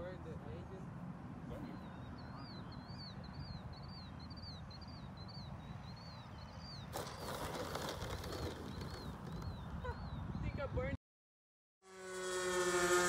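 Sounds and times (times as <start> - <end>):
small bird chirping: 1.6 - 10.7
wind rumble on microphone: 8.0 - 11.0.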